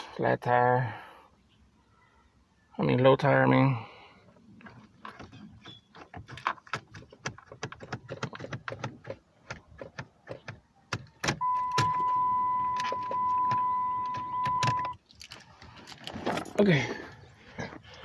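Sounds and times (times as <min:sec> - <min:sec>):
high electronic warning tone: 0:11.4 - 0:15.0.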